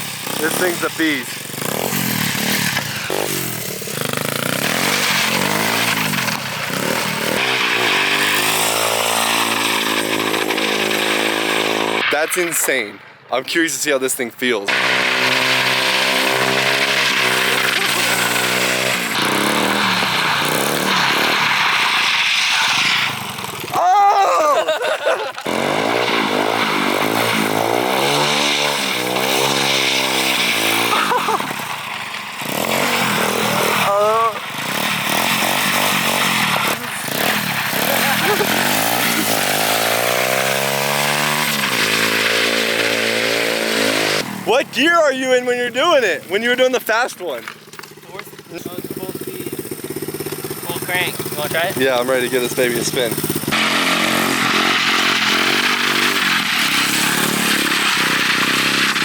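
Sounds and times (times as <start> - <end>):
small motorbike engine revving: 0.0 - 12.2, 14.6 - 59.0.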